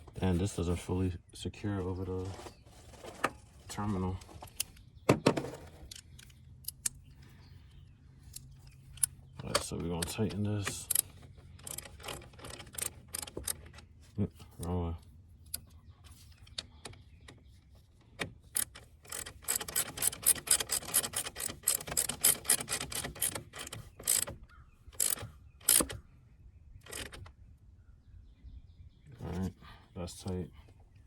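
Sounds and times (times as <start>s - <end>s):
ratchet wrench clicking: 11.6s - 13.6s, 18.6s - 24.3s, 25.0s - 25.9s.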